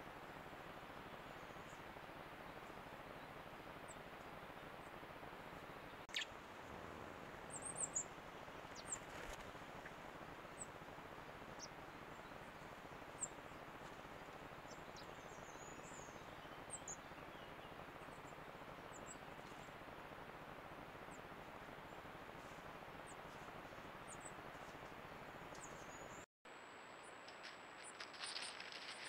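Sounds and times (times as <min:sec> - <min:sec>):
faint high bird chirps: 0:05.9 - 0:06.4.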